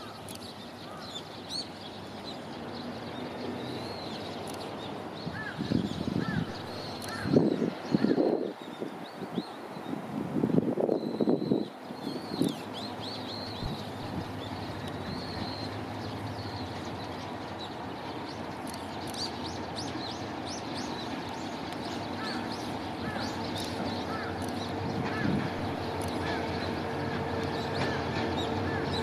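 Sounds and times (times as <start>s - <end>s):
small birds chirping: 11.0s - 29.0s.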